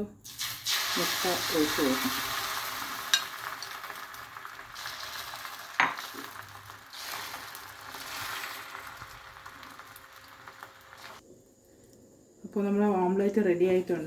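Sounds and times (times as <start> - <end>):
egg sizzling on griddle: 0.3 - 11.2.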